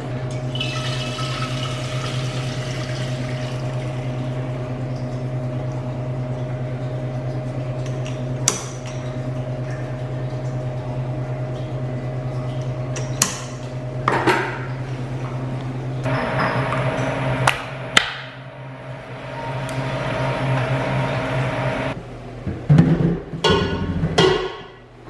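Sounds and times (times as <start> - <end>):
machine hum: 0.0 - 8.5, 14.7 - 22.4.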